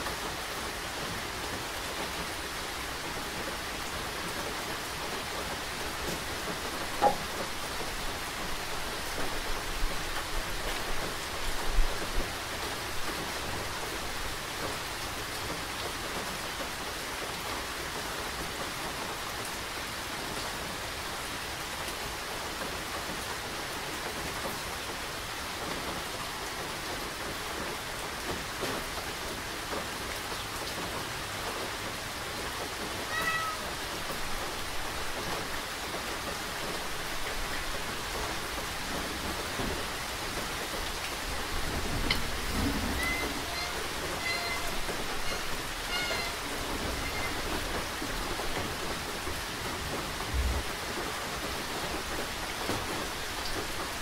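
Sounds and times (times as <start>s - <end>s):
steady rain falling: 0.0s - 54.0s
loud taps: 7.0s - 7.3s
cat meowing: 33.1s - 33.8s, 43.0s - 46.4s.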